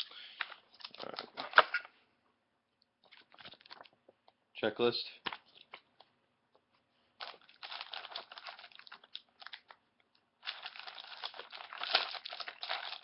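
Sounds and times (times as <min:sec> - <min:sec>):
plastic wrapping crinkling: 0:00.0 - 0:01.9, 0:03.0 - 0:04.1, 0:07.2 - 0:09.8, 0:10.4 - 0:13.0.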